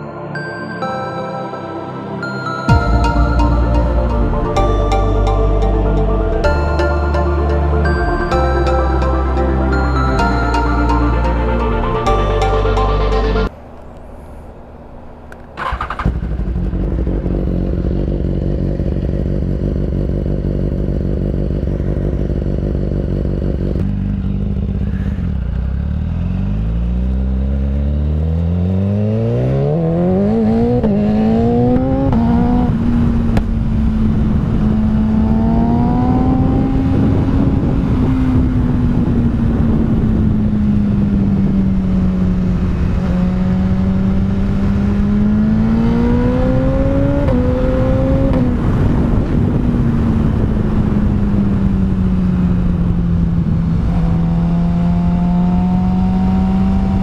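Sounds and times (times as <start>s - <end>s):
wind and road noise: 2.2s - 57.0s
motorcycle engine revving: 15.5s - 57.0s.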